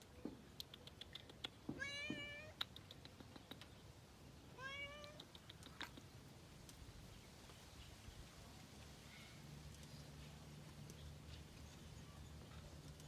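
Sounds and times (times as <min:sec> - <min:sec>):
cat meowing: 0:01.8 - 0:02.5, 0:04.6 - 0:05.2.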